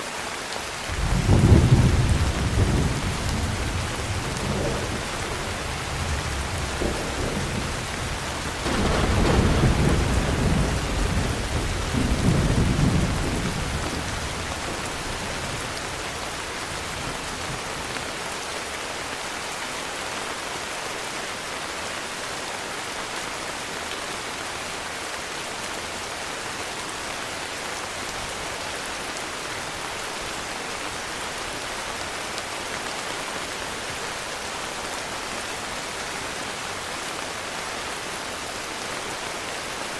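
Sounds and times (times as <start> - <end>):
heavy rain: 0.0 - 39.9
low rumble of thunder: 0.9 - 18.0.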